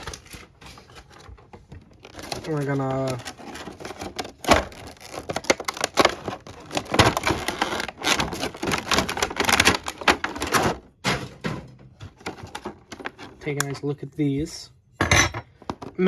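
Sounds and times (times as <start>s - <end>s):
packaging crackling and rustling: 0.0s - 11.0s, 12.0s - 13.8s.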